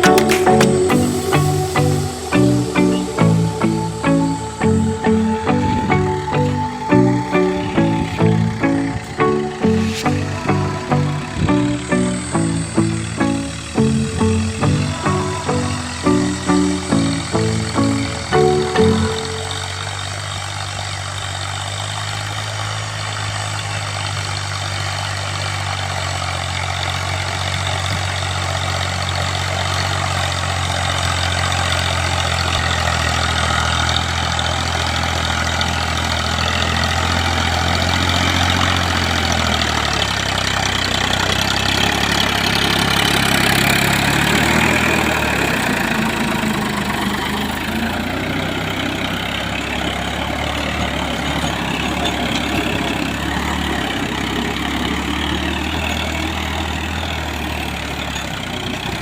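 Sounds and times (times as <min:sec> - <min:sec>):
hiss: 0:00.0 - 0:04.5
tractor engine running: 0:00.0 - 0:59.0.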